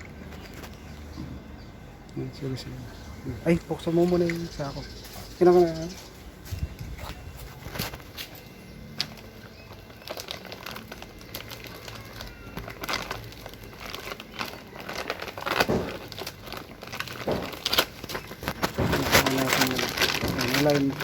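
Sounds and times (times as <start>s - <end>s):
woven sack rustling: 4.4s - 21.0s
sharp crackles and knocks: 6.5s - 21.0s.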